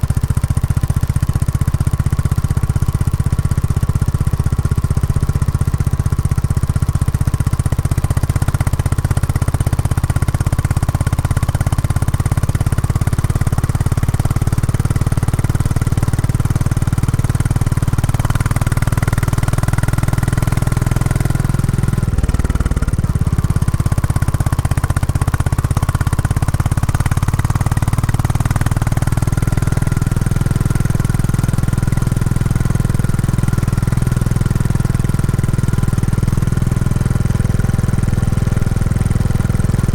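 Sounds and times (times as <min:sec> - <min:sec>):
motorcycle engine exhaust note: 0:17.5 - 0:39.9.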